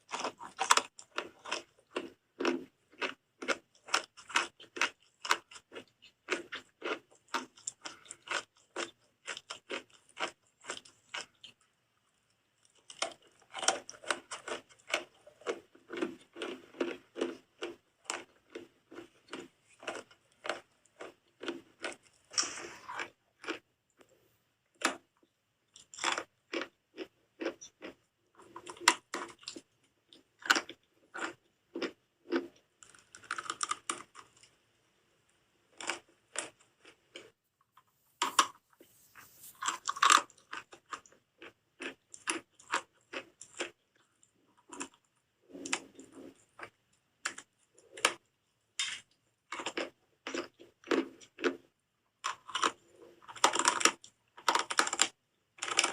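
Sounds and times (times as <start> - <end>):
soap being bitten and chewed: 0.0 - 34.6, 35.6 - 55.9.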